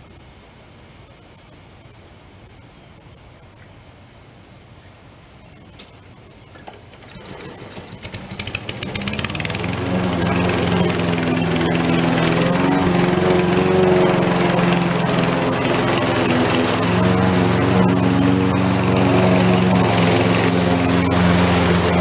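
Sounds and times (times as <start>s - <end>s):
faint outdoor background: 0.0s - 22.0s
lawn mower engine running: 6.6s - 22.0s.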